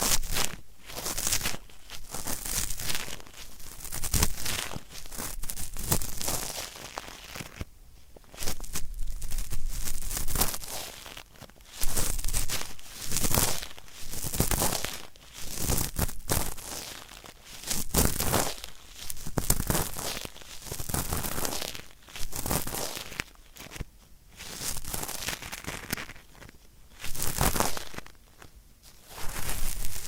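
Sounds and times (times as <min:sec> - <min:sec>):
cotton swab scratching in ear: 0:29.0 - 0:30.0.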